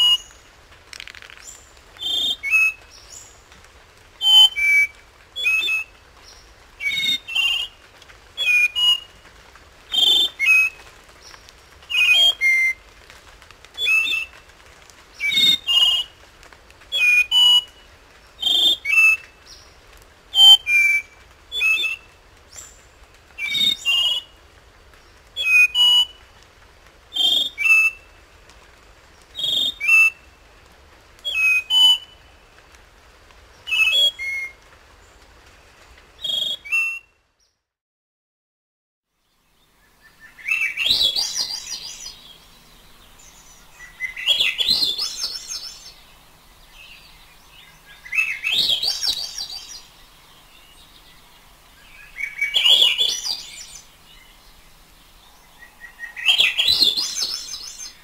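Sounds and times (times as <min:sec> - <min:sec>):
thrush singing fluty whistles: 0:36.2 - 0:37.1, 0:40.3 - 0:42.2, 0:43.8 - 0:46.0, 0:48.0 - 0:49.8, 0:52.0 - 0:53.9, 0:55.6 - 0:58.0.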